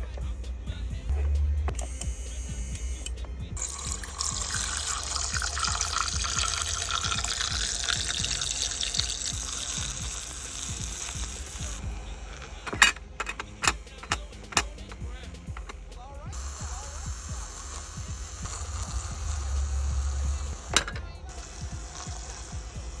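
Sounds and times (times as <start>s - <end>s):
background music: 0.0s - 23.0s
sharp clicks: 1.6s - 3.4s
water pouring: 3.6s - 11.8s.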